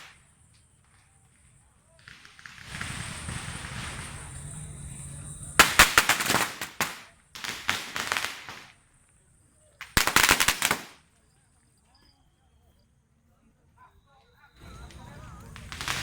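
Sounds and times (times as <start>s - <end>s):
firecracker fuse hiss: 0.0s - 9.0s, 9.8s - 11.1s, 14.6s - 16.0s
firecrackers banging: 0.0s - 9.2s, 9.8s - 11.1s, 14.6s - 16.0s.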